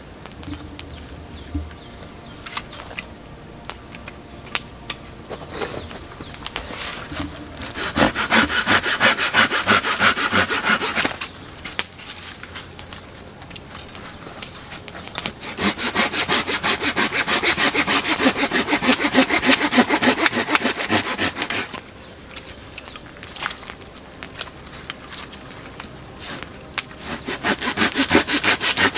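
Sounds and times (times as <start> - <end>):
hand saw cutting wood: 0.6 - 11.9, 15.1 - 21.9, 26.2 - 28.9.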